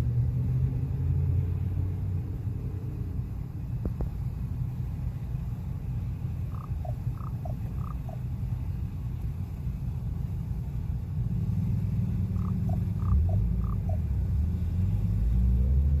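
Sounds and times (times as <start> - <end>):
raven knocking calls: 6.4 - 8.3, 12.2 - 14.1.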